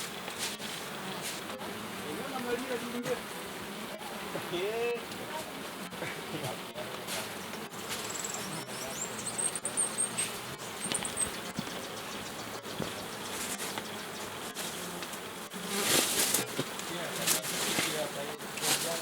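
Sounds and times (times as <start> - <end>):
bees buzzing: 0.0 - 19.0
high thin chirps: 7.9 - 11.6.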